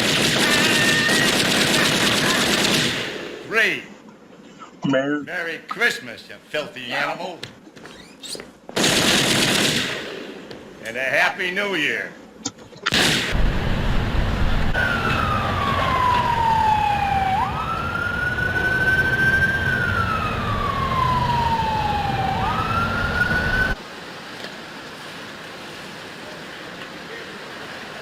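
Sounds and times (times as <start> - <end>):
loud low rumble: 13.3 - 16.0
siren wailing: 14.6 - 23.8.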